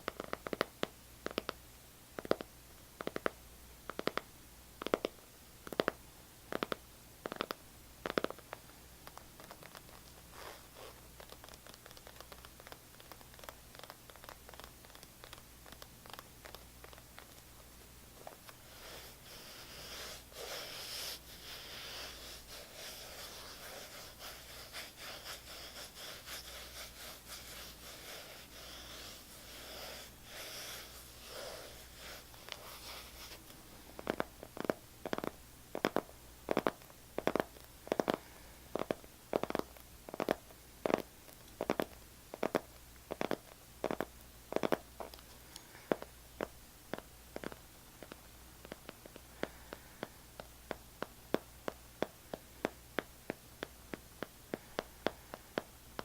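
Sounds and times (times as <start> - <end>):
steady tapping: 2.2 - 17.4
scratching on an object: 9.1 - 17.4, 18.2 - 38.2.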